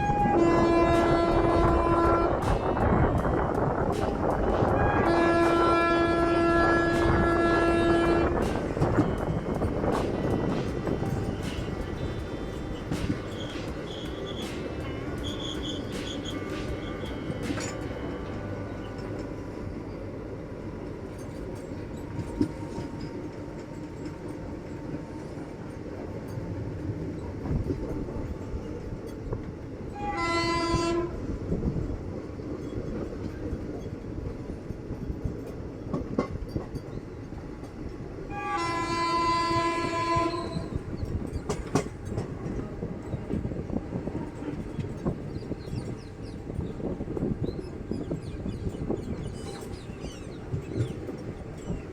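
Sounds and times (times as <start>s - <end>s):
train horn blasts: 0.0s - 13.4s, 29.9s - 31.4s, 38.3s - 41.2s
train rumbling with rail clicks: 0.0s - 51.9s.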